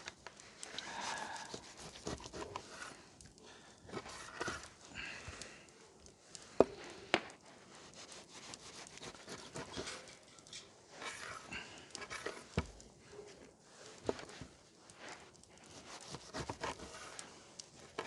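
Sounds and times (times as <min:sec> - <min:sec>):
knife slicing meat on board: 0:01.6 - 0:02.6.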